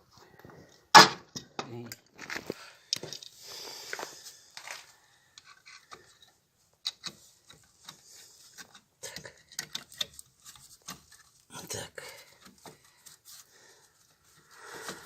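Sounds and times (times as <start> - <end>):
metal parts clicking and tapping: 8.6 - 11.3.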